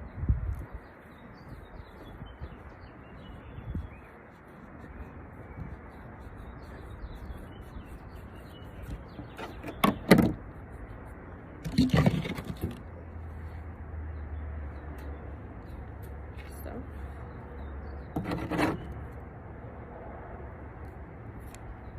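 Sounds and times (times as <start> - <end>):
faint bird chirps: 0.8 - 10.1.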